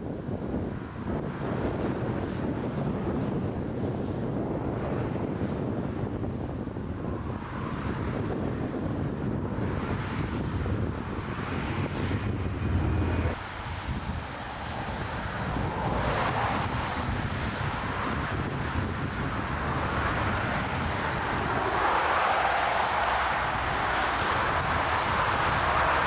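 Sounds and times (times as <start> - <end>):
wind buffeting microphone: 0.0 - 26.0
airliner rushing noise: 9.6 - 26.0.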